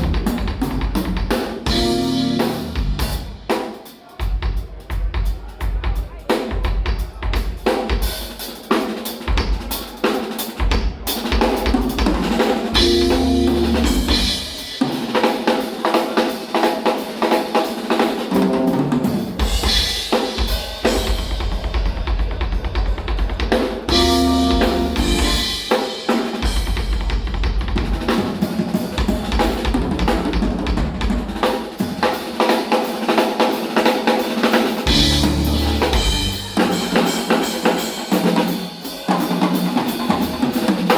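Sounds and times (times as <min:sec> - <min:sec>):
drum kit playing: 0:00.0 - 0:40.9
short pitched passages: 0:12.8 - 0:14.5.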